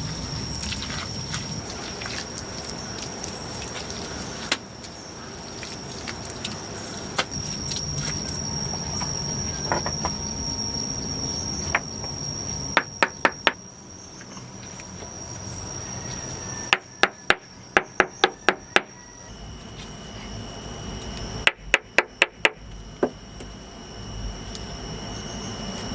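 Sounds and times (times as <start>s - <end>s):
steady high-pitched tone: 7.3s - 25.9s.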